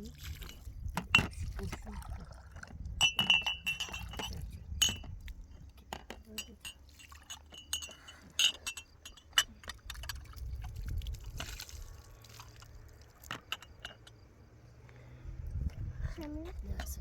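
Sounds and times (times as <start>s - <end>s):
clinks of small hard objects: 3.0s - 10.4s, 12.5s - 14.2s.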